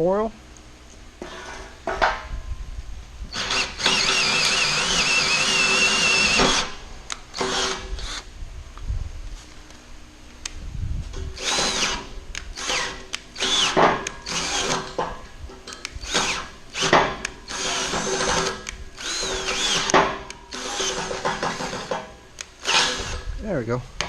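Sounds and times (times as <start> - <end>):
drill bit squealing: 3.3 - 6.7, 12.6 - 14.8, 16.0 - 19.9, 20.5 - 21.9, 22.6 - 23.2
electric drill boring into steel: 3.3 - 8.3, 11.4 - 15.0, 16.0 - 23.3.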